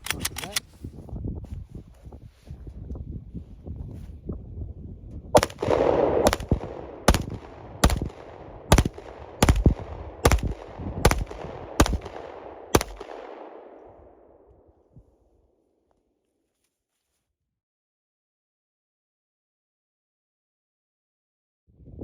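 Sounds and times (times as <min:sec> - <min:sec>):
pistol shots echoing: 0:05.4 - 0:14.0.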